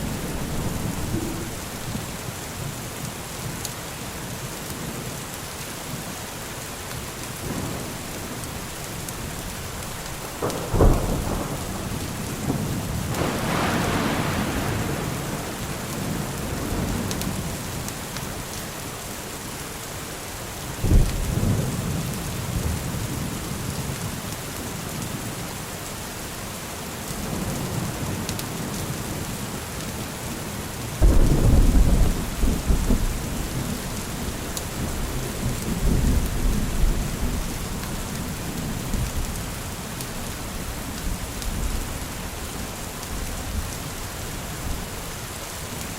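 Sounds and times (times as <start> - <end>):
thunder rumbling: 0.0 - 2.2, 7.4 - 17.7, 31.0 - 39.4
steady rain: 0.0 - 45.9
sharp thunder clap: 10.4 - 17.4, 31.0 - 33.7.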